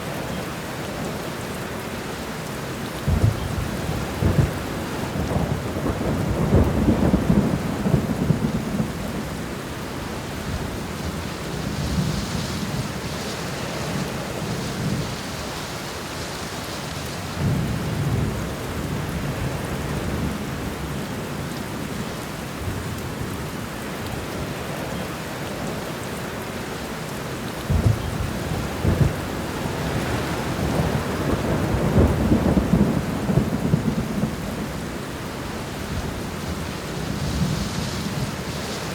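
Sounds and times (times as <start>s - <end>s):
heavy rain falling: 0.0s - 38.9s
rolling thunder: 3.0s - 13.2s, 27.6s - 38.9s
thunder clap: 3.1s - 9.3s, 27.7s - 34.7s.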